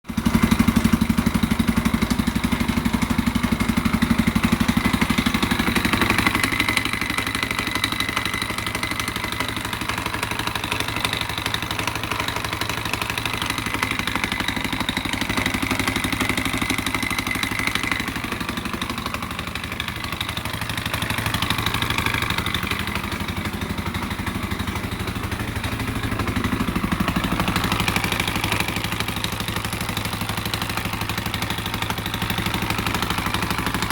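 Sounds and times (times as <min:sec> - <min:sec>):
motorcycle engine idling with knocking: 0:00.0 - 0:33.9.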